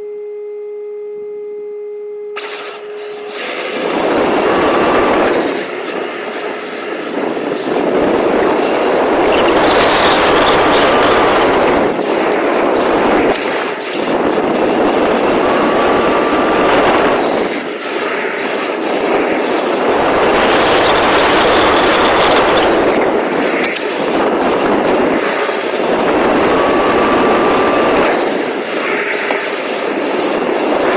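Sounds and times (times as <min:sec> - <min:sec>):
rc car rattling over rough ground: 0:07.2 - 0:30.9.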